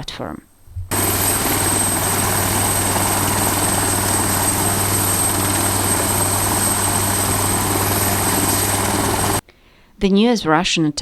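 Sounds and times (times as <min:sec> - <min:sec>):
helicopter rotor beating: 0:00.9 - 0:09.4
turbine whines: 0:00.9 - 0:09.4.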